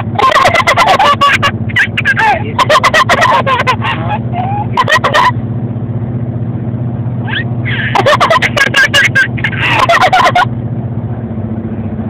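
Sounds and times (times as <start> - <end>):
person laughing: 0.0 - 5.4, 7.3 - 10.5
truck cabin drone: 0.0 - 12.0.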